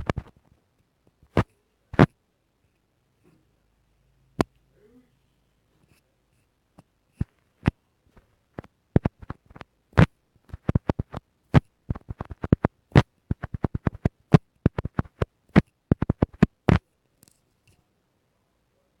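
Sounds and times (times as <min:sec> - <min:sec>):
sharp clicks and taps: 0:00.0 - 0:00.4, 0:08.6 - 0:17.8.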